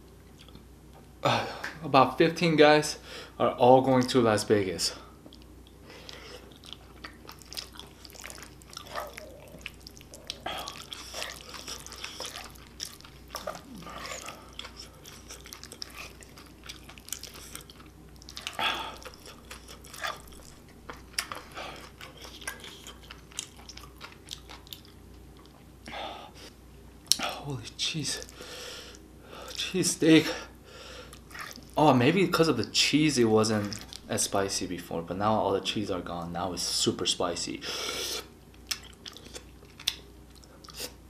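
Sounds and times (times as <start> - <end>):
wet chewing and lip-smacking: 5.2 - 26.0, 31.1 - 31.8, 33.6 - 34.1, 38.5 - 41.0.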